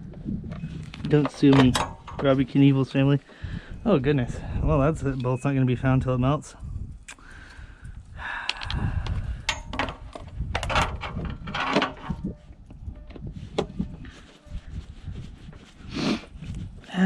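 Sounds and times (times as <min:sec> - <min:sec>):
hands and tools handling generator: 0:00.4 - 0:02.8, 0:08.4 - 0:15.8.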